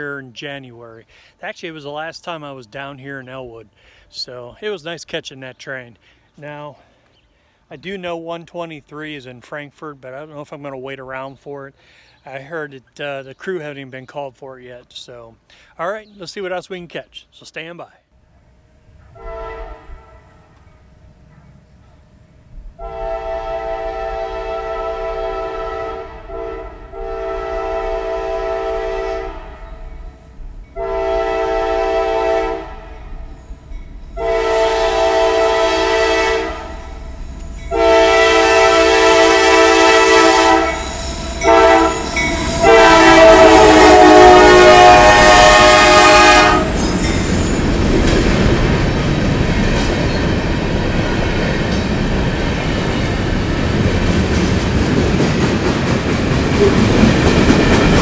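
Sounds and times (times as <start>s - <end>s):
train rumble and wheel clatter: 18.5s - 58.0s
locomotive air horn blasts: 18.8s - 20.8s, 22.7s - 33.5s, 34.2s - 47.4s.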